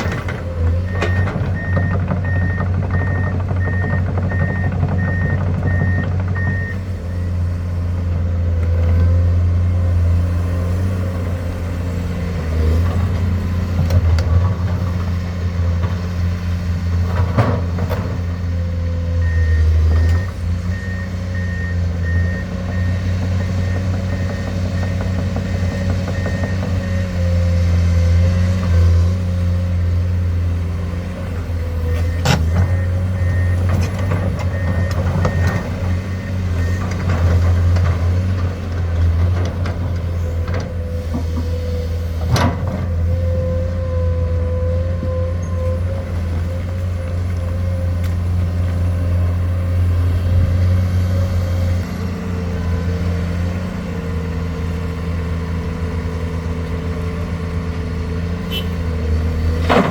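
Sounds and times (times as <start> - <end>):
diesel engine droning: 0.0 - 59.9
back-up alarm beeping: 0.9 - 7.3.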